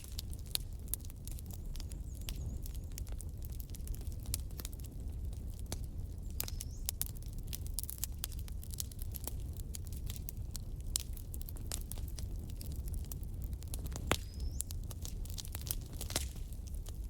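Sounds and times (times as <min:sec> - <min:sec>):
fire low rumble: 0:00.0 - 0:17.0
wood fire crackling and popping: 0:00.0 - 0:17.0.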